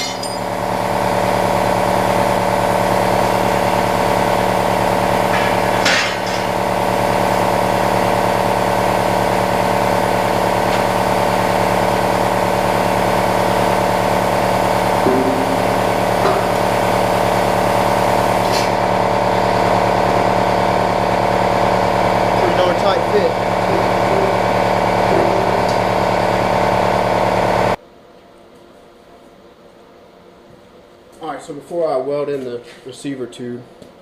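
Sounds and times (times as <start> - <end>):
plasma cutter buzzing hum: 9.7 - 20.7.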